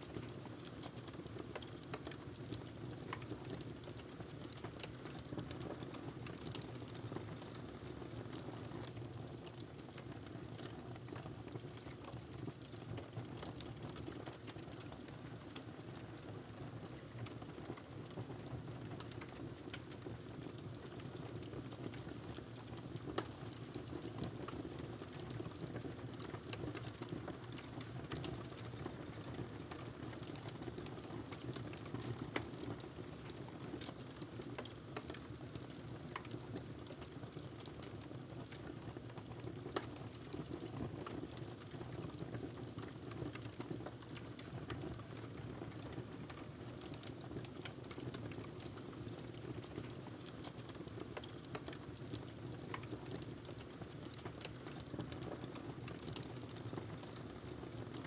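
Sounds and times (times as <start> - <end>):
wood fire crackling: 18.8 - 58.0.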